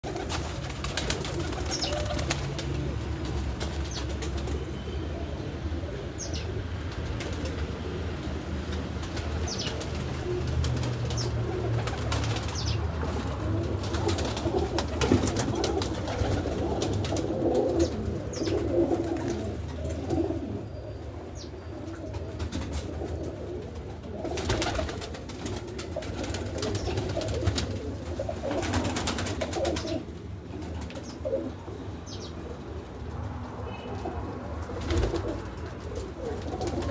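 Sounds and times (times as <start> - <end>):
wings flapping: 0.0 - 4.7, 6.9 - 7.8, 8.7 - 20.3, 22.4 - 31.1, 34.6 - 36.9
pigeons cooing: 0.0 - 36.9.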